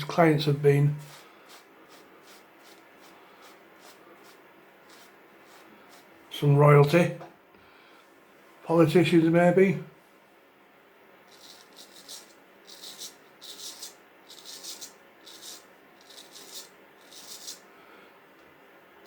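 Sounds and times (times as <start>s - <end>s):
razor sharpening strokes: 1.0s - 6.1s, 11.3s - 17.6s.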